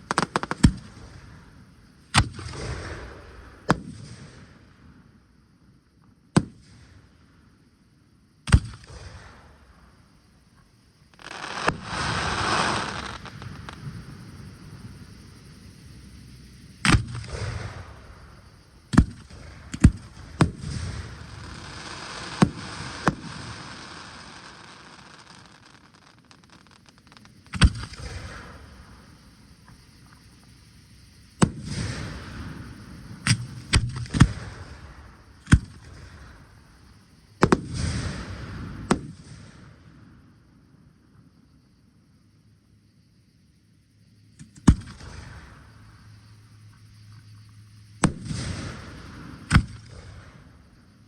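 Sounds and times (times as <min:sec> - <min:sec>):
firework crackling hiss: 0:00.0 - 0:04.8, 0:11.0 - 0:40.4.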